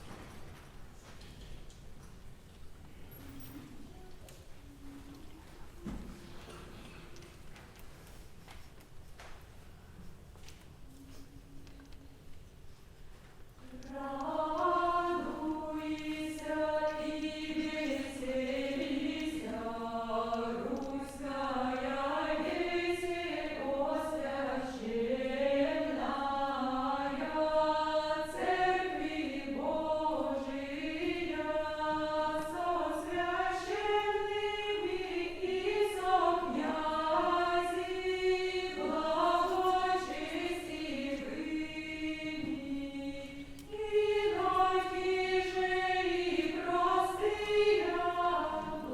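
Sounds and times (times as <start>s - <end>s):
choir singing chant: 13.6s - 48.9s.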